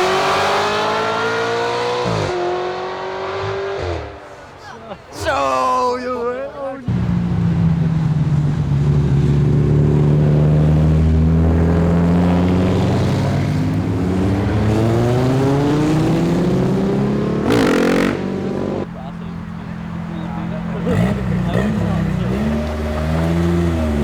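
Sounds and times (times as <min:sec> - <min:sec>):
car engine and exhaust running: 0:06.9 - 0:24.0.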